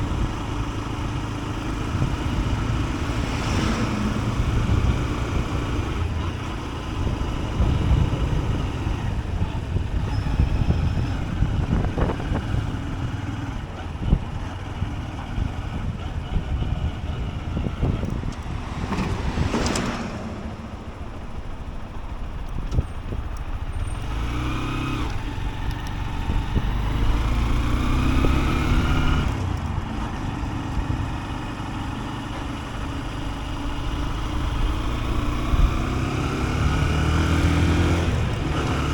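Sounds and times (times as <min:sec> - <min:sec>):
motorcycle engine running: 0:00.0 - 0:38.9
wind rumble on microphone: 0:00.0 - 0:38.9
loud whoosh: 0:17.8 - 0:22.3.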